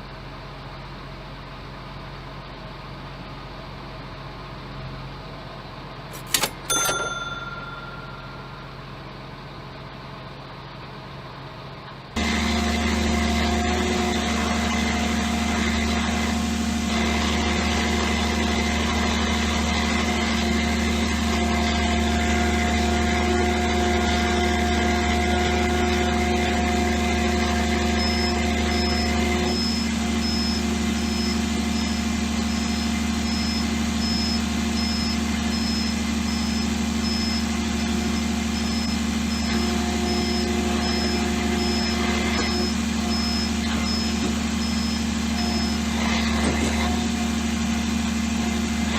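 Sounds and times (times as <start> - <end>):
steady whine: 6.1 - 9.0
high-pitched warning beep: 6.2 - 8.8, 27.9 - 37.5, 38.1 - 45.8.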